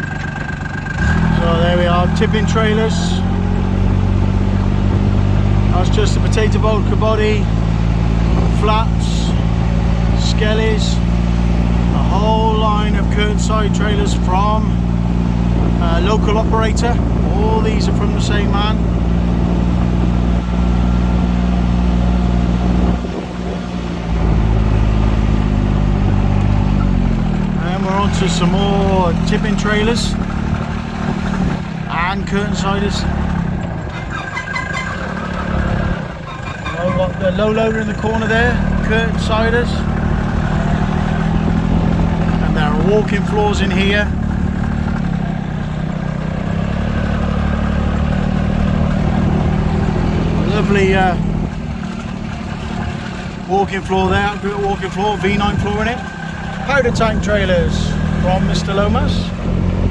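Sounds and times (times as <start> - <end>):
small vehicle engine running: 0.0 - 59.9.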